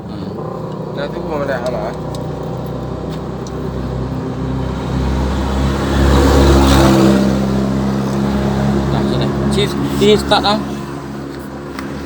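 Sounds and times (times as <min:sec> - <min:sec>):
diesel truck engine idling: 0:00.0 - 0:06.7.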